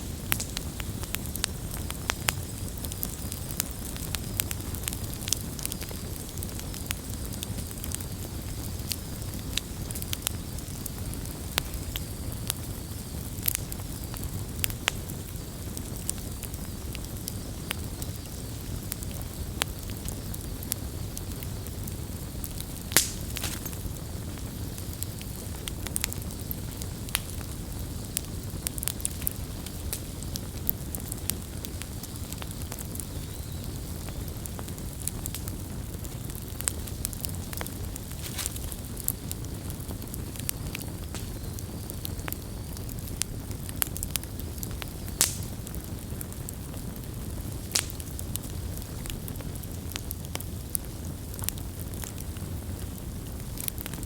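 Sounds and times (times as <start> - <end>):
campfire crackling: 0.0 - 54.0
loud fire pop: 22.9 - 23.8.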